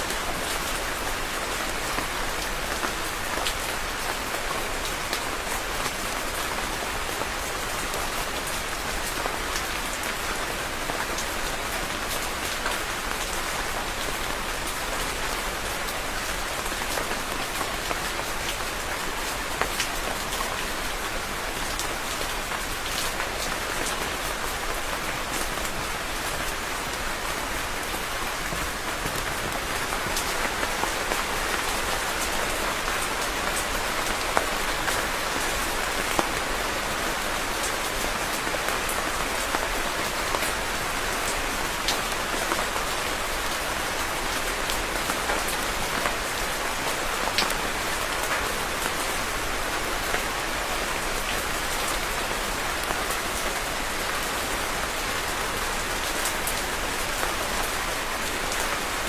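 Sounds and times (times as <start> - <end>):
rain falling on a surface: 0.0 - 59.0
raindrop taps: 28.4 - 30.3.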